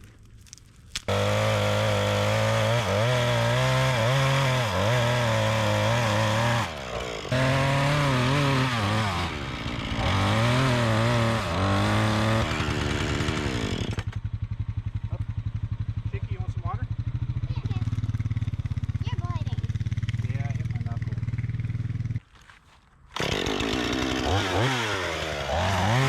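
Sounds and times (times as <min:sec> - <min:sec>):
chainsaw engine revving: 0:01.1 - 0:14.2, 0:23.1 - 0:26.0.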